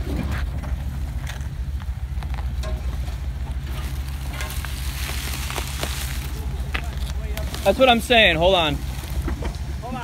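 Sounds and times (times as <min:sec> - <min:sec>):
car engine idling: 0:00.0 - 0:10.0
dry leaves crunching underfoot: 0:03.6 - 0:09.4.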